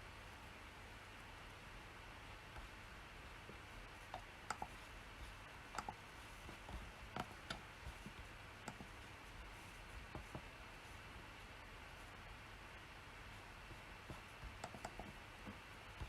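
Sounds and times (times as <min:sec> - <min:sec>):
faint steady hiss: 0:00.0 - 0:16.0
computer clicks: 0:04.1 - 0:04.8, 0:05.7 - 0:06.0, 0:07.1 - 0:07.7, 0:08.6 - 0:08.9, 0:14.6 - 0:15.2.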